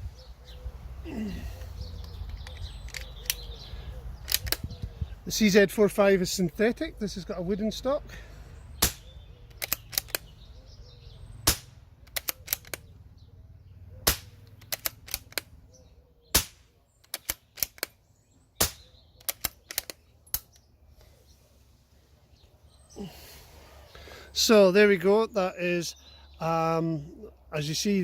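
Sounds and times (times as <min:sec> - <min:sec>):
rifle bolt metallic clicks: 0:02.0 - 0:03.6, 0:04.2 - 0:04.9, 0:08.8 - 0:10.3, 0:11.5 - 0:12.9, 0:14.0 - 0:15.6, 0:16.4 - 0:18.0, 0:18.6 - 0:20.7
suppressed rifle shots: 0:14.0 - 0:15.5, 0:16.3 - 0:17.7.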